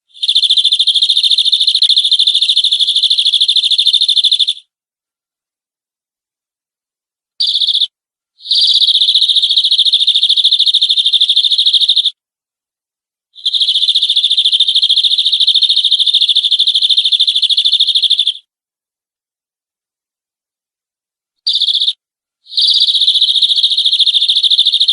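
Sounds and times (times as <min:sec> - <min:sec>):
canary singing trills: 0:00.2 - 0:04.6, 0:07.4 - 0:12.1, 0:21.5 - 0:24.9.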